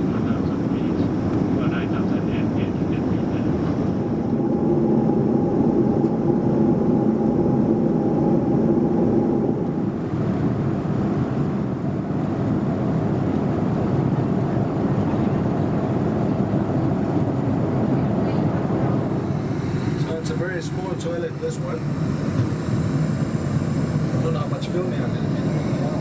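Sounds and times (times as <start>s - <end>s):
steady hum: 0.0s - 11.0s, 18.3s - 26.0s
roar of engines and airflow: 0.0s - 26.0s.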